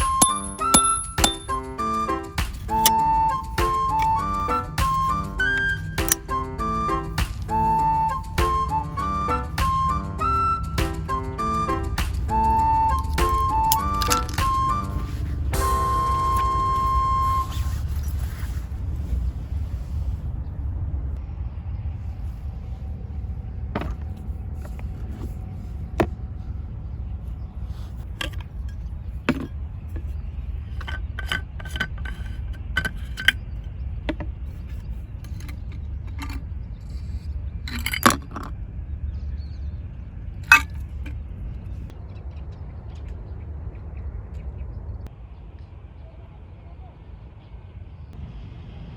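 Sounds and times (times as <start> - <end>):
light clinks and knocks: 0.0 - 1.6
steady low rumble: 14.4 - 31.9.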